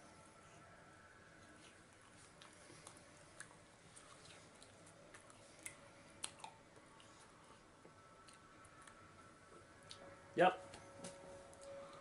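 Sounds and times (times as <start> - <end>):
faint chewing with clicks: 1.3 - 12.0.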